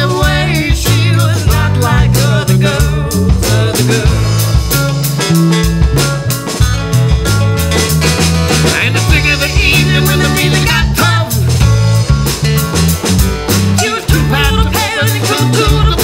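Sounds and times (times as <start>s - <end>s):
bass notes: 0.0s - 16.0s
drum kit hits: 0.0s - 16.0s
guitar: 0.0s - 16.0s.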